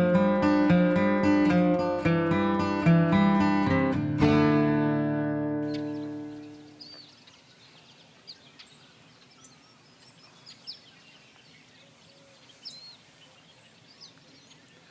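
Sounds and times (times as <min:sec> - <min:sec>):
steady outdoor hiss: 0:00.0 - 0:14.9
small birds chirping: 0:05.6 - 0:14.9.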